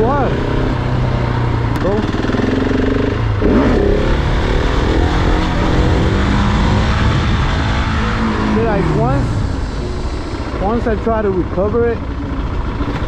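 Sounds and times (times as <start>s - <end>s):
motorcycle engine revving: 0.0s - 13.0s
wind noise: 3.2s - 11.6s.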